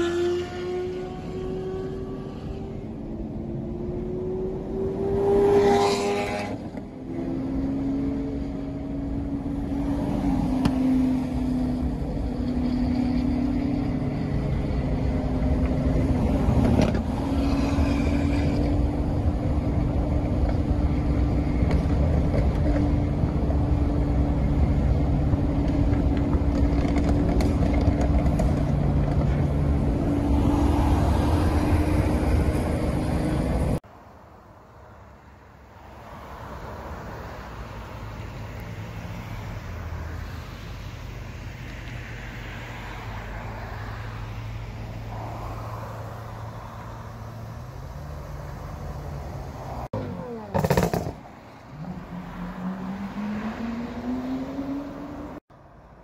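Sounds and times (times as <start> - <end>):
car engines droning: 0.0 - 56.0
road noise: 0.0 - 56.0.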